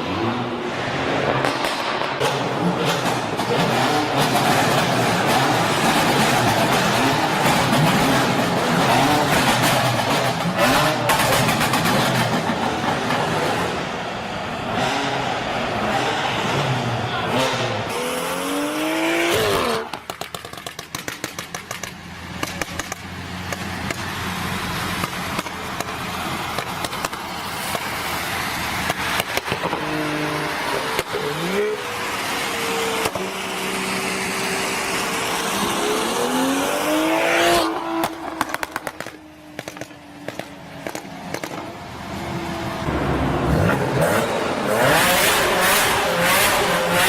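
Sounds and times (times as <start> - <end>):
car engine revving: 0.0 - 47.0
traffic noise: 0.0 - 47.0
exhaust crackling and popping: 19.3 - 31.4, 37.6 - 42.2.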